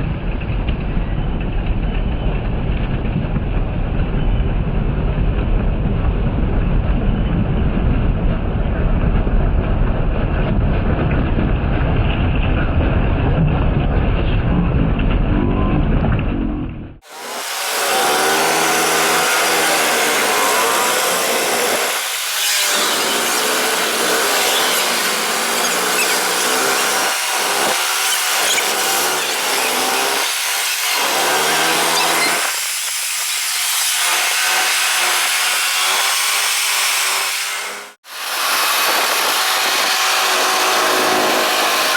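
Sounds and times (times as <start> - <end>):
low rumble: 0.0 - 17.0
motocross bike engines revving: 17.0 - 41.9.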